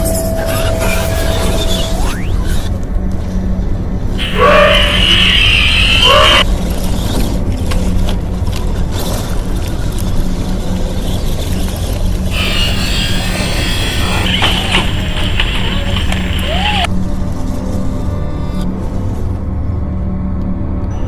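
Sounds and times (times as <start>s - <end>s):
bright high-pitched noise: 0.0s - 2.7s
quad bike engine droning: 4.2s - 16.9s.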